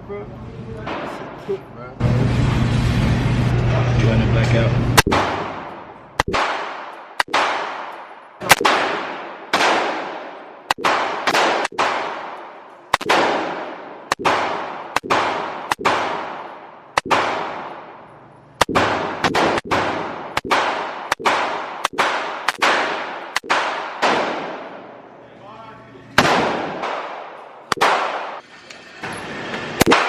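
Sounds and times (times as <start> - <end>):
gunshots with echoing decay: 5.0 - 18.0, 18.6 - 25.0, 26.2 - 28.4, 29.8 - 30.0.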